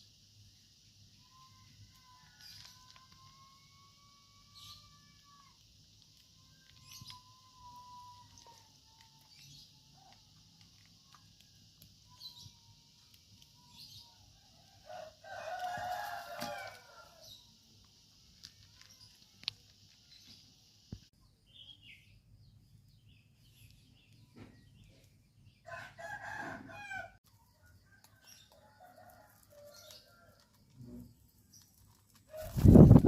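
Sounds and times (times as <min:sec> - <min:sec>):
rooster crowing: 0:14.4 - 0:17.4, 0:25.6 - 0:27.2, 0:28.0 - 0:30.4.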